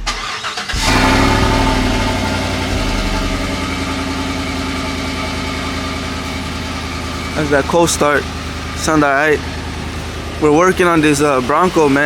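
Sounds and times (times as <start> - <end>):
starter cranking: 0.0 - 3.8
pickup engine idling: 0.0 - 12.0.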